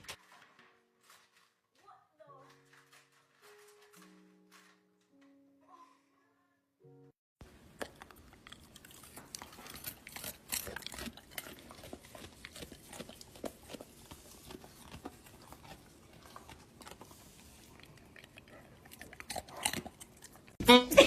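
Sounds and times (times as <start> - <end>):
pet crunching food: 7.4 - 20.6.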